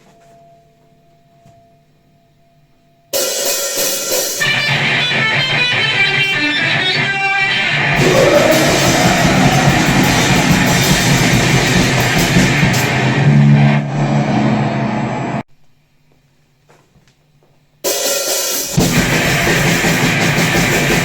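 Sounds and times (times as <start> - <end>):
distorted guitar and drums: 3.2 - 13.8, 17.9 - 21.0.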